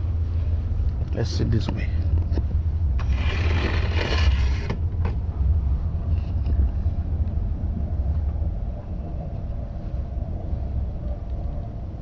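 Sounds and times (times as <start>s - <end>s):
train rumbling: 0.0s - 12.0s
wind buffeting microphone: 0.0s - 12.0s.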